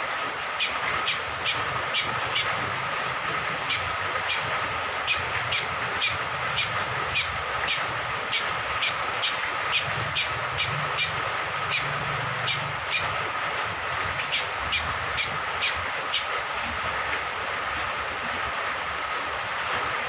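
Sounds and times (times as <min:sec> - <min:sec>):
rain hiss: 0:00.0 - 0:20.0
bird calling sharp notes: 0:00.6 - 0:02.6, 0:05.1 - 0:13.2, 0:14.2 - 0:16.3.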